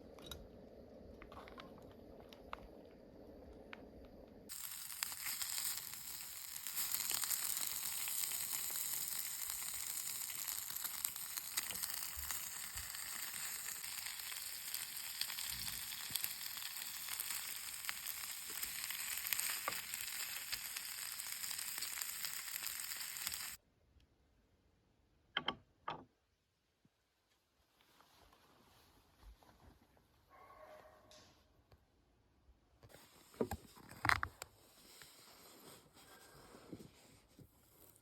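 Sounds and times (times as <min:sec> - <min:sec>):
food sizzling in hot pan: 0:04.5 - 0:23.6.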